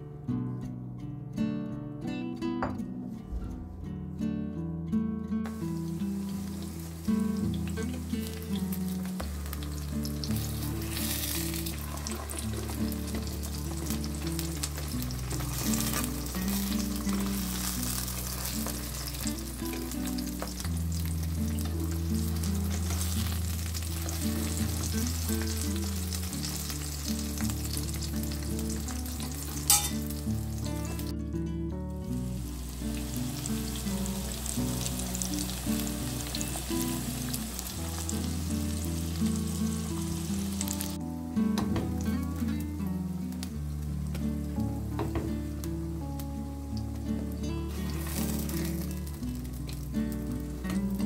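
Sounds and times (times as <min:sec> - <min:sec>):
soft background music: 0:00.0 - 0:51.0
vegetables sizzling in oil: 0:05.5 - 0:31.1, 0:32.1 - 0:51.0
utensils clicking against pan: 0:29.7 - 0:30.1.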